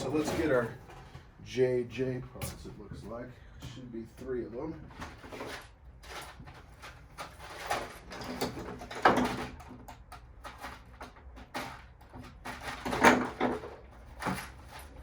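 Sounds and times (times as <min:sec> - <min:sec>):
parts rustling and clicking: 0:04.9 - 0:15.0.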